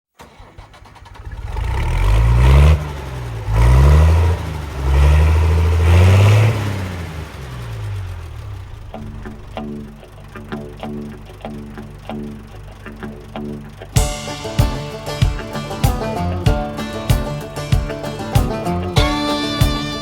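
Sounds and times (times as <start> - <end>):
engine revving: 0.2 - 20.0.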